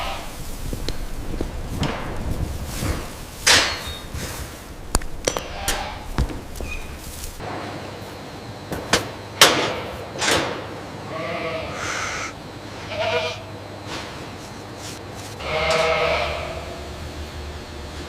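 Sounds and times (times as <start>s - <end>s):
goats bleating: 0.0s - 0.4s, 5.4s - 6.6s, 11.1s - 13.5s, 15.4s - 16.8s
sharp knocks and clatters: 1.4s - 4.2s.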